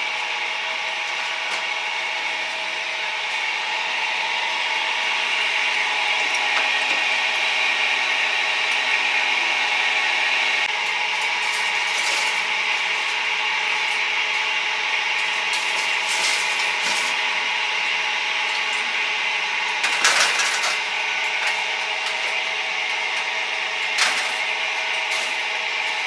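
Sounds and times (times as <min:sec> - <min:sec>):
utensils clattering: 0:19.8 - 0:26.0.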